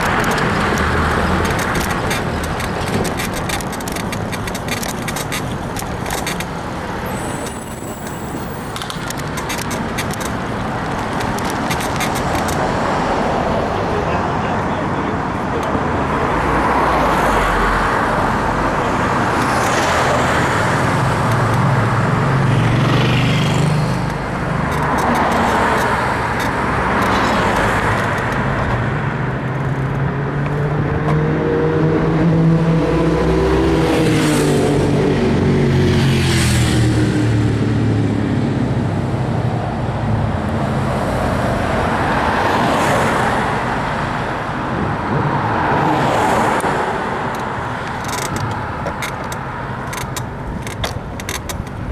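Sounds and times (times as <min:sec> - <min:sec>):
bicycle road noise: 0:00.0 - 0:31.2, 0:32.7 - 0:51.9
traffic going by: 0:00.0 - 0:51.9
wind noise: 0:44.2 - 0:46.2.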